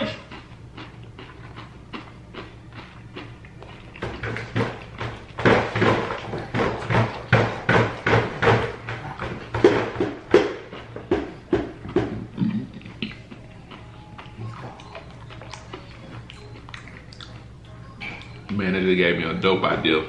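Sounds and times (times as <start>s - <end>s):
crunchy chewing of fried chicken: 0.0s - 7.4s, 12.8s - 18.6s.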